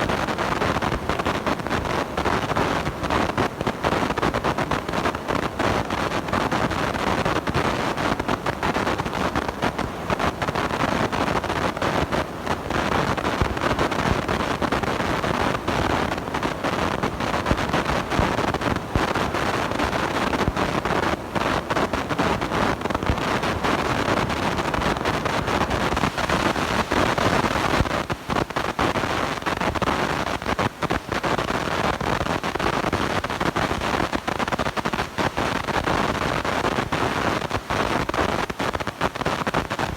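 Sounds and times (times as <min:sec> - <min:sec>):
blown microphone harsh noise: 0:00.0 - 0:39.9.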